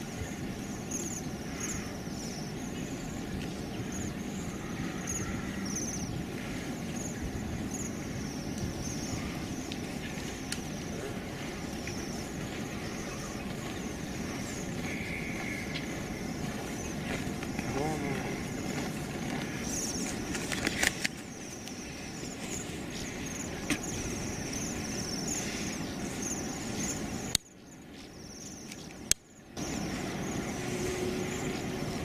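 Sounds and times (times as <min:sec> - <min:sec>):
high chirping bird calls: 0:00.0 - 0:29.0
low outdoor rumble: 0:00.0 - 0:32.0.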